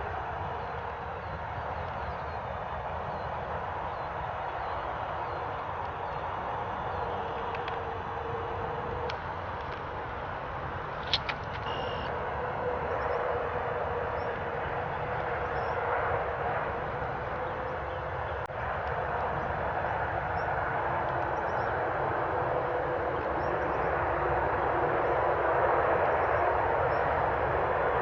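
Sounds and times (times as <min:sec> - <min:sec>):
distant mechanical drone: 0:00.0 - 0:28.0
faint bird chirps: 0:11.6 - 0:12.1.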